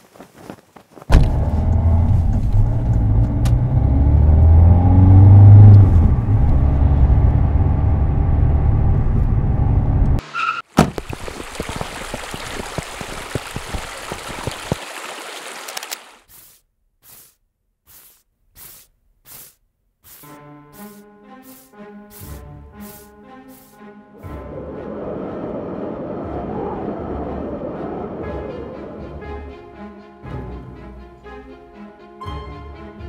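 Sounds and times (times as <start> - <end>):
car engine revving: 1.1 - 10.2.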